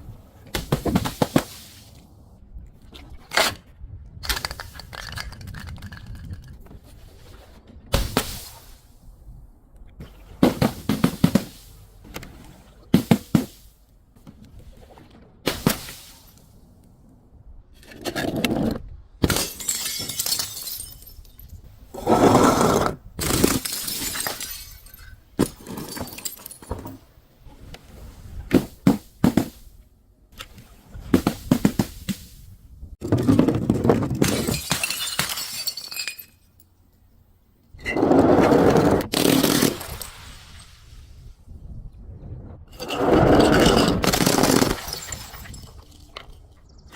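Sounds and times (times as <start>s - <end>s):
glass bottles shattering: 19.2s - 21.7s, 23.2s - 26.9s, 34.2s - 36.7s, 39.2s - 40.4s, 43.3s - 46.4s.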